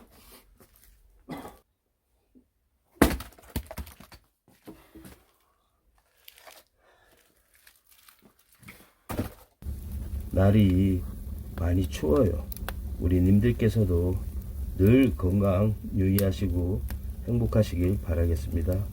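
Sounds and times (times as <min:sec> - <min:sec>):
firewood knocking: 0:09.6 - 0:13.4
light clicks and crackles: 0:09.7 - 0:13.0, 0:16.1 - 0:18.9.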